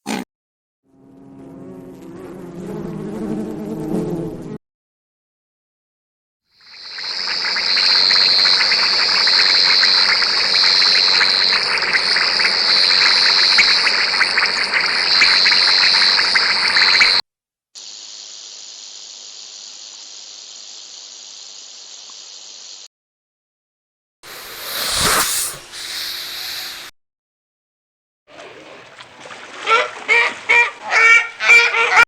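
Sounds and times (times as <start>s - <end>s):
high-pitched insect buzzing: 24.3s - 26.9s.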